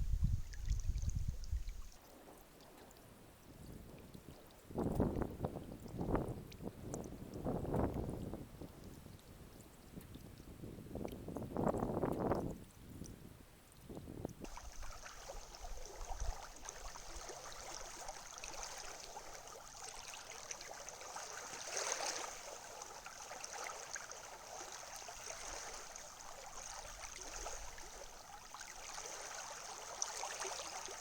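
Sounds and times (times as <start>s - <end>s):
wind buffeting microphone: 0.0s - 2.0s, 4.7s - 8.9s, 10.5s - 16.6s
water washing along shore: 14.5s - 31.0s.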